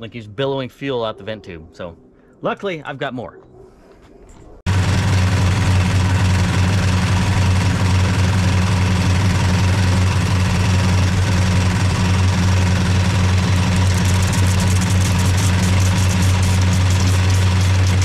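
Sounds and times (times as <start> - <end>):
car engine idling: 4.7 - 18.0.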